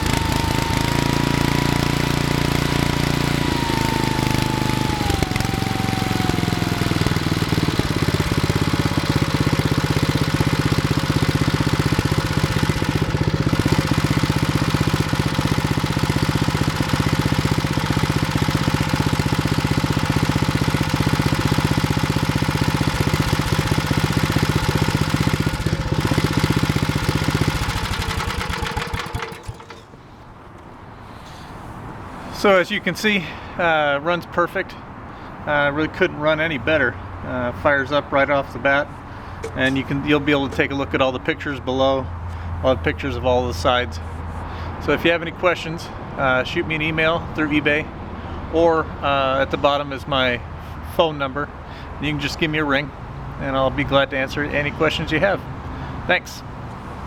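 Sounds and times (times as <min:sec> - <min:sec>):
tiller engine running: 0:00.0 - 0:31.7, 0:37.2 - 0:43.0.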